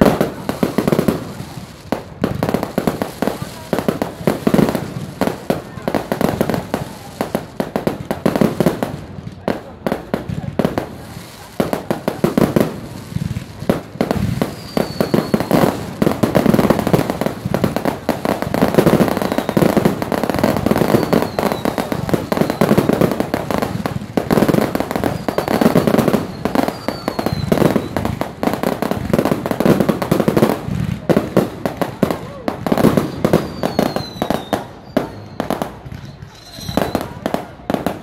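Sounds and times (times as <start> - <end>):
fireworks bangs and crackles: 0.0 - 38.0
faint falling whistles: 33.4 - 37.0.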